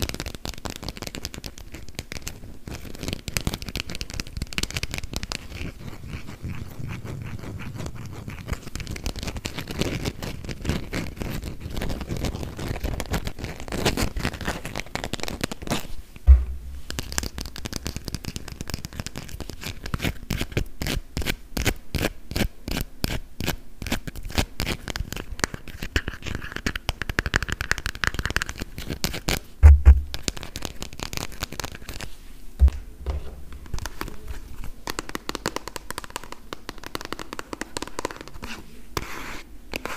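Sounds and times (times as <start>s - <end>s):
short low thumps: 16.3s - 17.7s, 29.6s - 30.2s, 32.6s - 33.9s.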